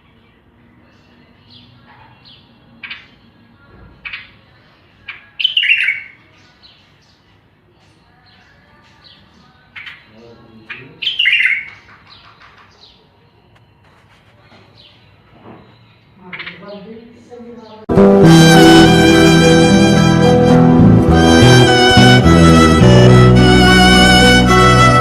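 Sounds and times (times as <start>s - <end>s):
birds chirping: 0.0s - 17.9s.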